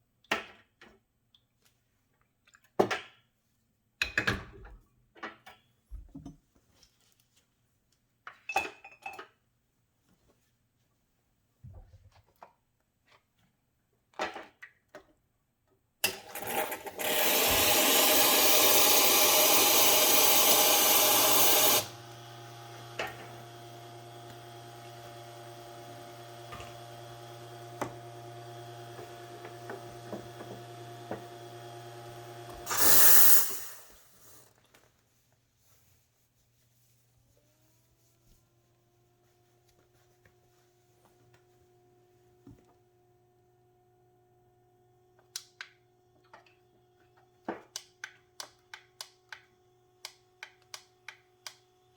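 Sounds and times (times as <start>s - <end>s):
espresso machine rushing hiss: 16.4s - 34.5s
pump humming: 17.0s - 34.3s
pressure release whoosh: 32.7s - 34.4s.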